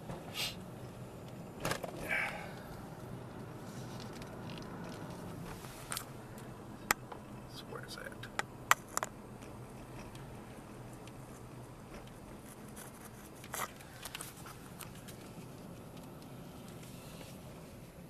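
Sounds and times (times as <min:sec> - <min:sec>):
low hum inside vehicle cab: 0:00.0 - 0:18.0.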